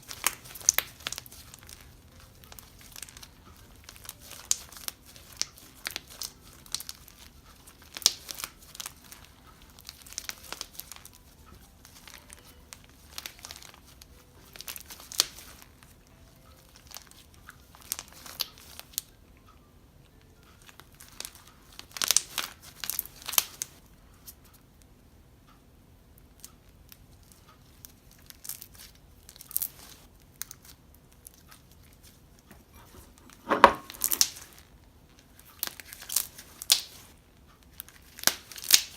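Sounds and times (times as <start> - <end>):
slime crackling and popping: 0.0 - 19.1, 20.6 - 23.8, 26.4 - 33.0, 33.8 - 38.9.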